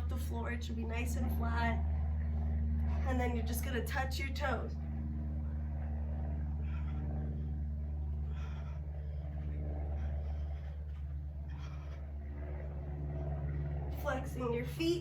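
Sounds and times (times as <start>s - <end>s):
steady low hum: 0.0s - 15.0s
person breathing faintly: 6.5s - 13.4s.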